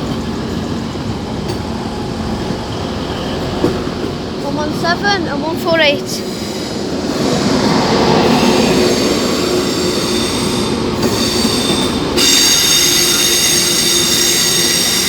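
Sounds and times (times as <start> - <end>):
diesel train running: 0.0 - 15.0
wheel squeal: 8.4 - 15.0.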